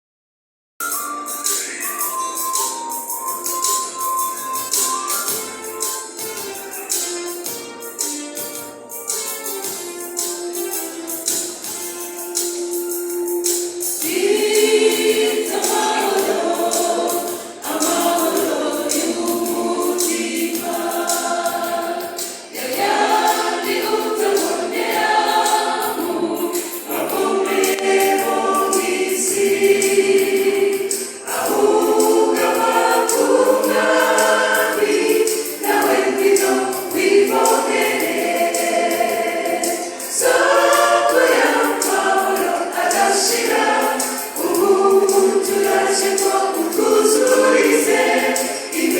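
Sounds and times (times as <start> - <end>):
gospel choir singing in harmony: 0.8 - 48.9.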